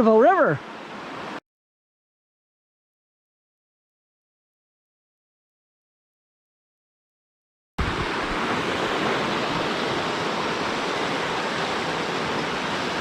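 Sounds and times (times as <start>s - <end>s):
river rushing whitewater roar: 7.8s - 13.0s.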